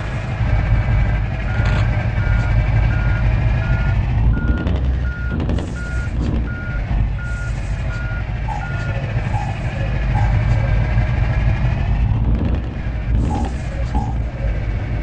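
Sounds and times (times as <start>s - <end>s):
truck engine rumble: 0.0s - 15.0s
truck reversing alarm beeps: 0.4s - 11.3s.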